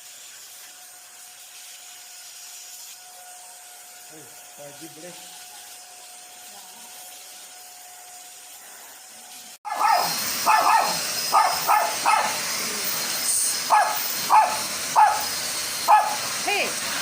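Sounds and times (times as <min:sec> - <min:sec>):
dog barking and yipping: 0:09.7 - 0:12.5, 0:13.6 - 0:16.6.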